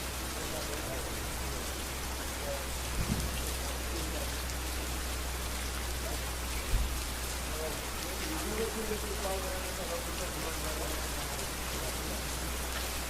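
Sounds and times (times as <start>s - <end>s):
rain falling on a street: 0.0s - 13.0s
dull low thump: 2.9s - 3.5s, 6.6s - 7.0s.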